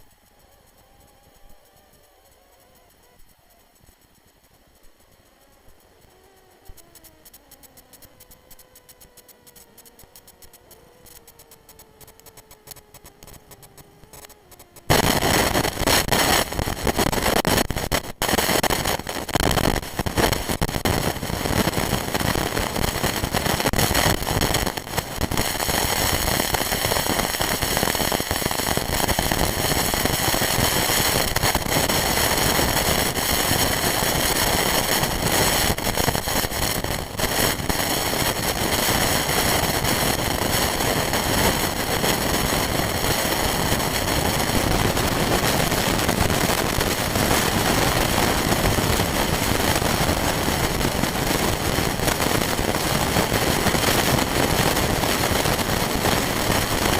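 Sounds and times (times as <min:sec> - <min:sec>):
quadcopter motors whining: 0:00.0 - 0:17.4.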